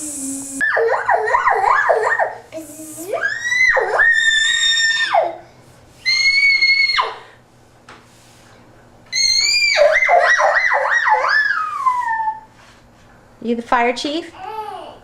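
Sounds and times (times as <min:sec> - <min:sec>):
toy siren high tone: 0:00.6 - 0:02.4, 0:09.2 - 0:12.4
toy siren yelping: 0:00.6 - 0:02.4, 0:09.2 - 0:12.5.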